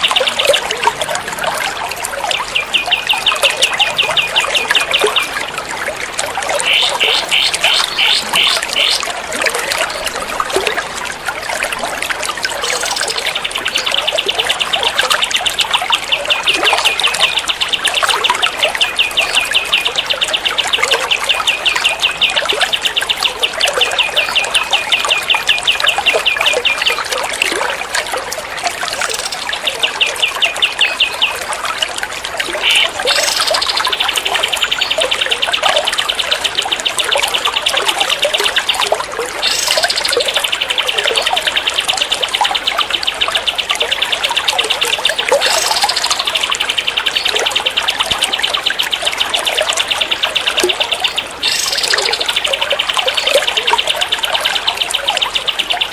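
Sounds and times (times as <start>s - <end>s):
running water trickling: 0.0s - 55.9s
songbird rattling trill: 39.4s - 55.9s.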